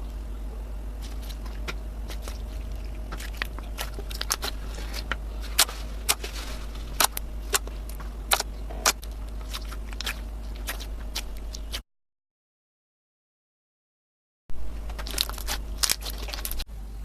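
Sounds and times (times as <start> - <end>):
steady low hum: 0.0 - 11.8, 14.5 - 17.0
slime popping and crackling: 1.0 - 11.8, 14.9 - 16.6.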